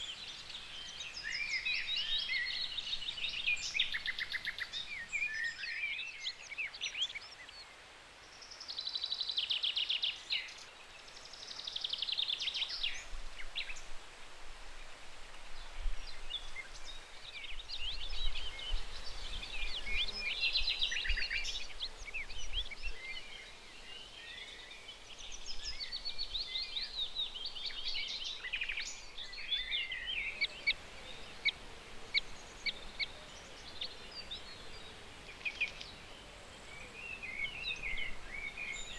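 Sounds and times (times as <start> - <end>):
birds singing: 0.0 - 7.7, 15.6 - 38.9
faint background hiss: 0.0 - 38.9.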